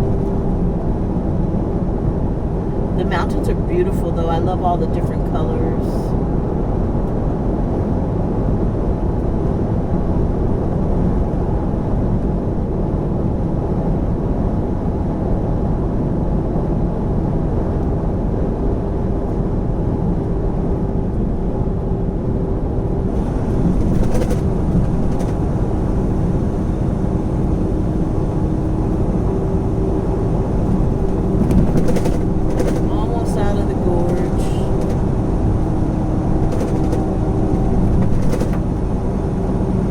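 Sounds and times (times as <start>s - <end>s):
faint steady hum: 0.0s - 39.9s
diesel engine rumble: 16.8s - 39.9s.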